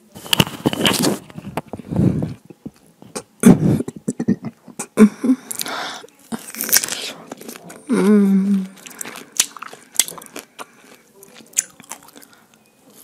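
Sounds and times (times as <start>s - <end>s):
wet chewing and slurping: 6.4s - 12.4s.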